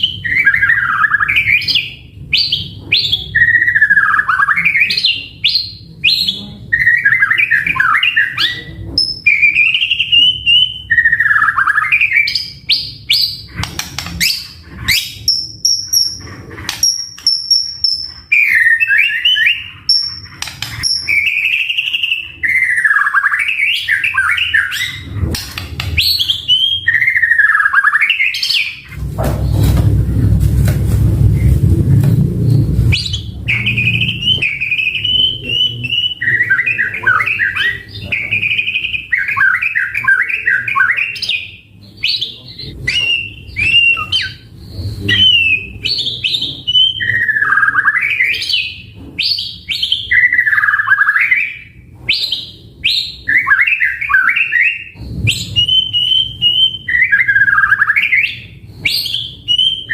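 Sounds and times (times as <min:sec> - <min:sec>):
bird singing varied phrases: 0:00.0 - 0:25.2, 0:25.9 - 0:28.9, 0:32.9 - 0:59.9
low rumbling noise: 0:28.9 - 0:38.4, 0:54.9 - 0:56.9.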